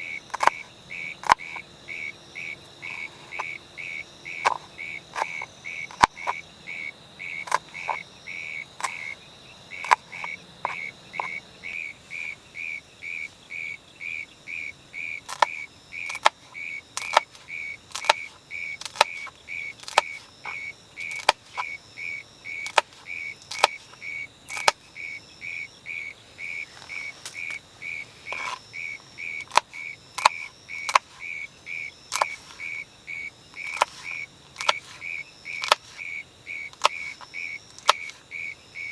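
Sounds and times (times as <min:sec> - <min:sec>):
small animal chirping: 0:00.0 - 0:12.4, 0:14.2 - 0:38.2
sharp irregular ticks: 0:00.1 - 0:11.8, 0:15.1 - 0:21.8, 0:22.5 - 0:24.8, 0:26.7 - 0:31.4, 0:32.1 - 0:32.8, 0:33.5 - 0:38.2.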